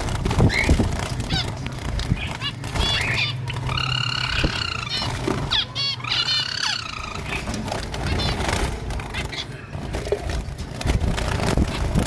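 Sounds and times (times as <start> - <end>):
drawn-out bird calls: 0.4 - 10.0.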